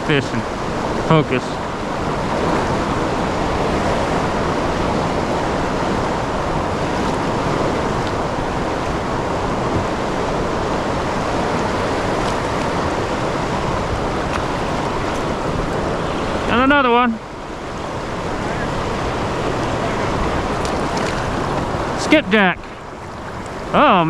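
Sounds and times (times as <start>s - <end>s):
fast-flowing water rushing: 0.0s - 24.0s.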